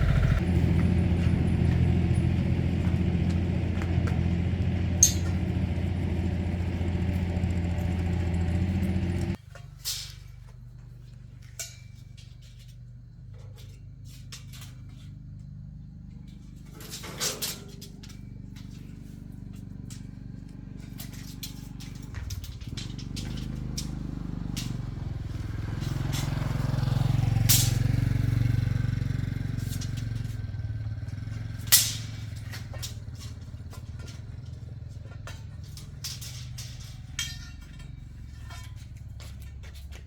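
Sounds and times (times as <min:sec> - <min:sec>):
sharp metallic knocks and clicks: 0:00.0 - 0:09.4
low engine rumble: 0:00.0 - 0:40.0.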